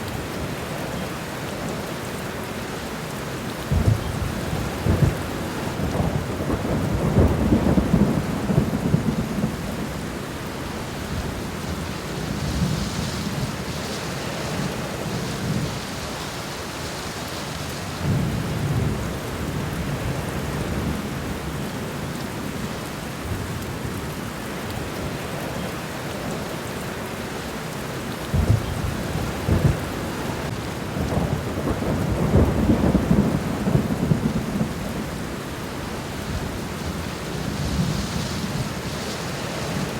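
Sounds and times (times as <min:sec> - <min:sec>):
rain falling on leaves: 0:00.0 - 0:39.9
deep thunder rumbles: 0:03.7 - 0:10.2, 0:28.3 - 0:39.9.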